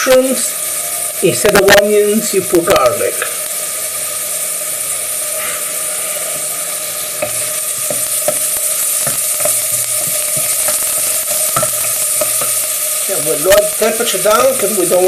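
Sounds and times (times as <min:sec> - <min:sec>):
food sizzling in a pan: 0:00.0 - 0:15.0
utensil stirring and tapping pan: 0:07.2 - 0:14.6.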